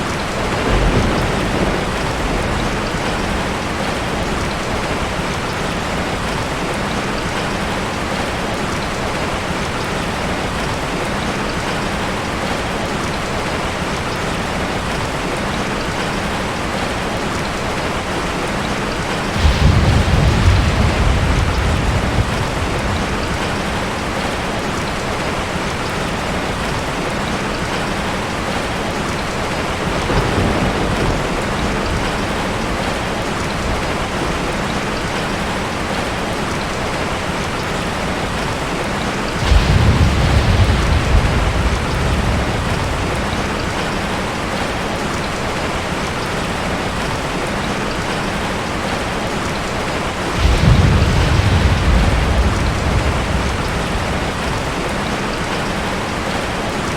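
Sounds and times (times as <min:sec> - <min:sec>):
rolling thunder rumbles: 0:00.0 - 0:10.7, 0:16.2 - 0:26.7, 0:28.4 - 0:36.2, 0:38.1 - 0:46.2, 0:49.9 - 0:56.5
steady rain falling: 0:00.0 - 0:56.9.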